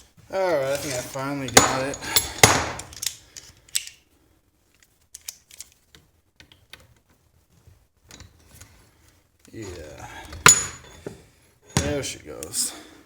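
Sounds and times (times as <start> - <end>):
metal parts clicking and tapping: 0.8 - 4.0, 4.8 - 7.0.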